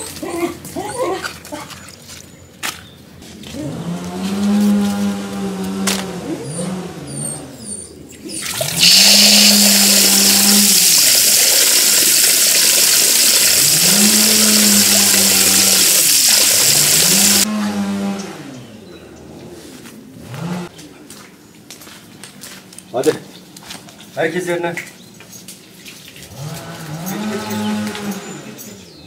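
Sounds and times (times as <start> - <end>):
cattle mooing: 3.6 - 7.6, 13.4 - 16.0, 26.4 - 28.4
rushing water: 8.3 - 17.5.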